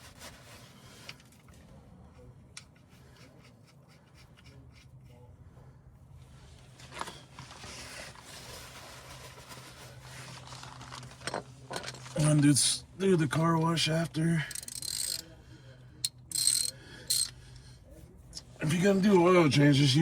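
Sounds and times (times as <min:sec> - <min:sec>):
light handling clicks and rubbing: 0:00.1 - 0:05.2, 0:14.5 - 0:15.4, 0:16.0 - 0:17.4
steady low hum: 0:00.7 - 0:20.0.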